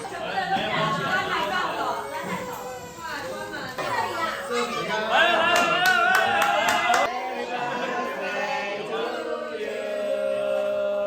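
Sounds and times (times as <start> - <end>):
group singing in unison: 4.8 - 11.0.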